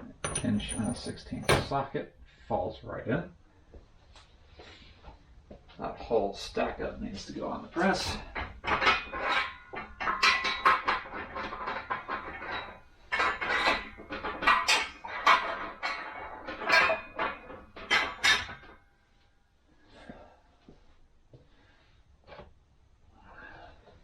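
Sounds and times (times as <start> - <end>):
metal parts clinking and clattering: 0.1 - 1.8, 7.8 - 18.8.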